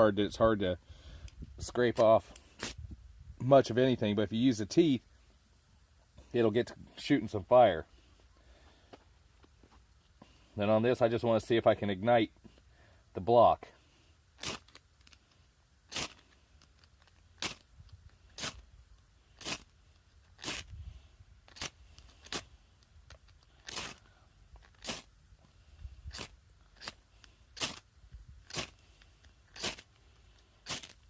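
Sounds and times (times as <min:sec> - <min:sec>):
saw blade scraping firesteel rod: 0:15.9 - 0:16.4, 0:18.3 - 0:18.6, 0:19.4 - 0:20.8, 0:21.5 - 0:22.5, 0:23.6 - 0:24.0, 0:24.6 - 0:25.1, 0:26.1 - 0:27.8, 0:28.4 - 0:28.8, 0:29.5 - 0:30.0, 0:30.6 - 0:31.0.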